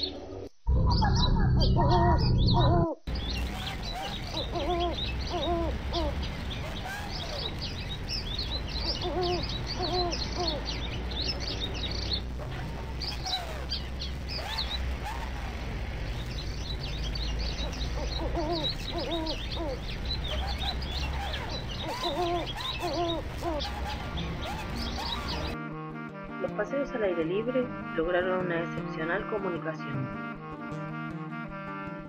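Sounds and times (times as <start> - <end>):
high bird chirping: 0.0 - 25.6
low rumble: 0.6 - 25.6
lower bird calls: 1.0 - 25.6.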